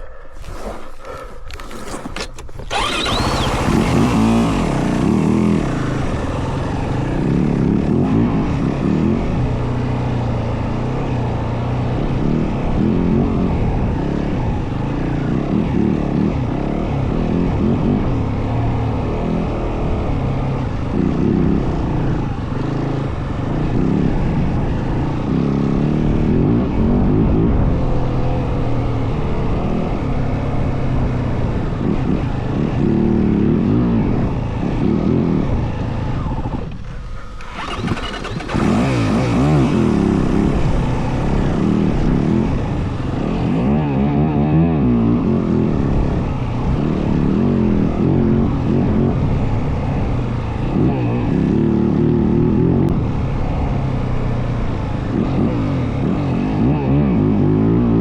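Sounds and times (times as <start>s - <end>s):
dirt bike engine revving: 0.4s - 9.3s, 37.2s - 43.0s.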